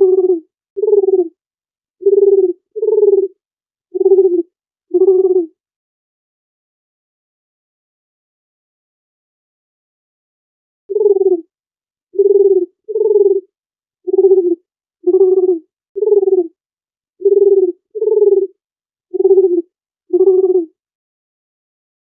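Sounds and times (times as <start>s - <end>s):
dove cooing: 0.0s - 1.3s, 2.0s - 3.4s, 4.0s - 5.5s, 10.9s - 11.4s, 12.2s - 13.5s, 14.1s - 16.6s, 17.2s - 20.8s.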